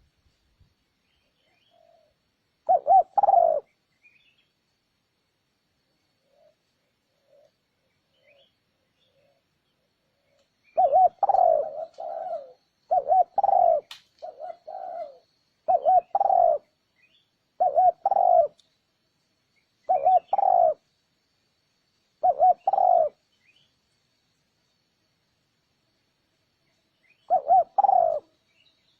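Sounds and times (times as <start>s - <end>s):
dove cooing: 1.4s - 3.7s, 6.2s - 7.6s, 8.2s - 16.7s, 17.6s - 18.6s, 19.9s - 20.8s, 22.2s - 23.2s, 27.2s - 28.4s.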